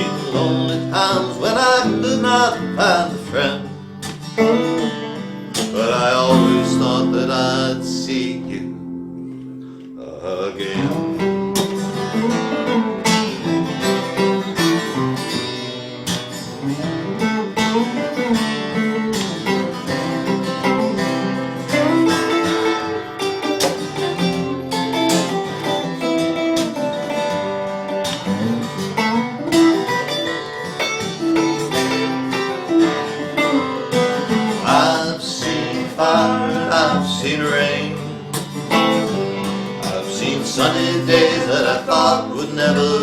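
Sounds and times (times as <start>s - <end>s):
acoustic guitar picking: 0.0s - 43.0s.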